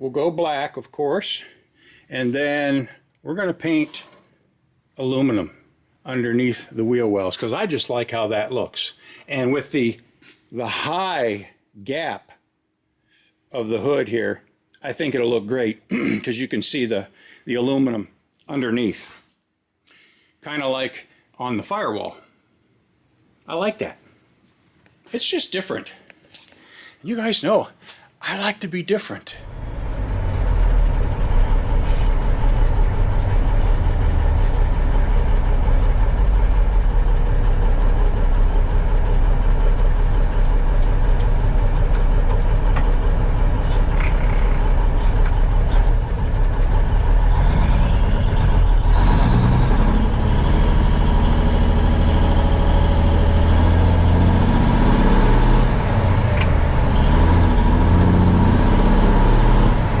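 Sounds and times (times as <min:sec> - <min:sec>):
truck diesel engine running: 0:29.4 - 1:00.0.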